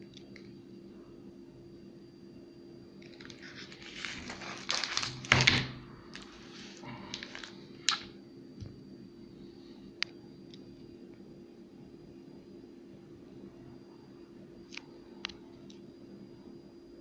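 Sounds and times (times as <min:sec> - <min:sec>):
packaging crinkling: 0:03.0 - 0:08.1.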